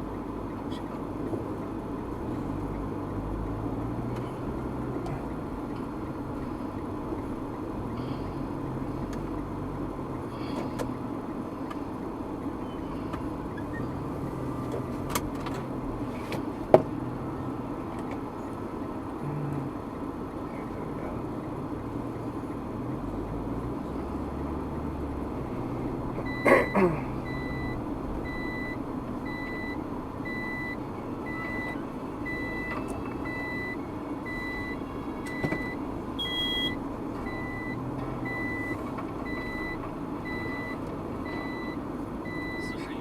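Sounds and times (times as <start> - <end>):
car road and engine noise: 0.0 - 43.0
electronic beeps: 27.3 - 42.9.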